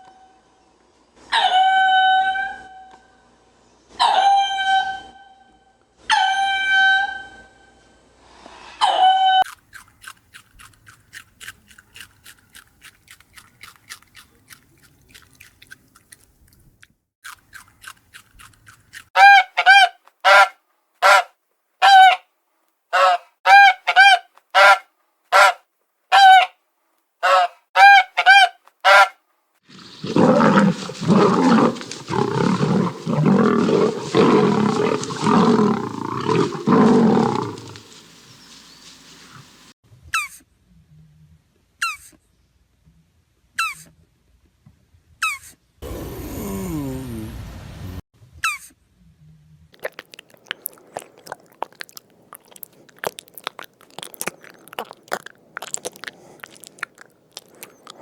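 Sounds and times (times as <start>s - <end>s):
faint rapid peeping: 29.7s - 39.7s.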